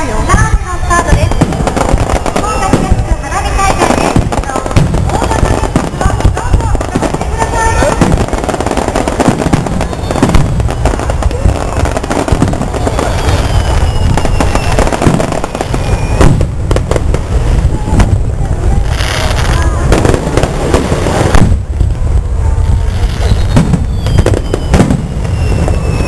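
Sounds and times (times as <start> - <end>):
crowd voices: 0.0 - 26.0
fireworks bursting and crackling: 0.0 - 26.0
falling firework whistle: 0.3 - 4.4, 7.7 - 16.6, 22.2 - 26.0.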